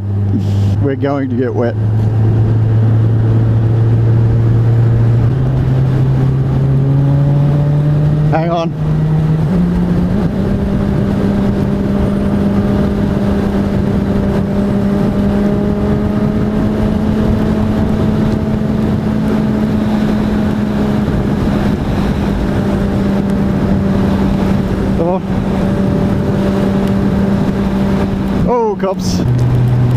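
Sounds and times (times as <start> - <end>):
motorcycle engine cruising: 0.0 - 29.9
wind rush on microphone: 0.0 - 29.9.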